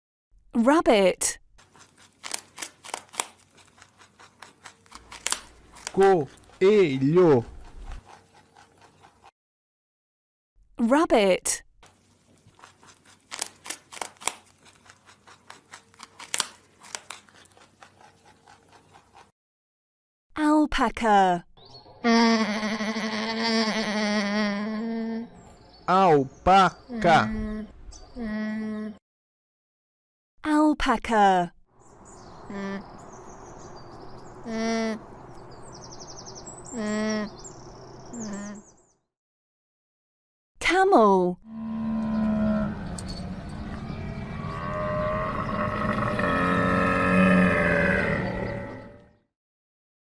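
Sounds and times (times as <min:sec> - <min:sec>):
rabbit crunching and rustling: 0:01.6 - 0:09.3, 0:11.8 - 0:19.3
small birds chirping: 0:01.9 - 0:09.3, 0:12.0 - 0:19.3, 0:21.6 - 0:22.0, 0:25.1 - 0:28.5, 0:31.8 - 0:39.1.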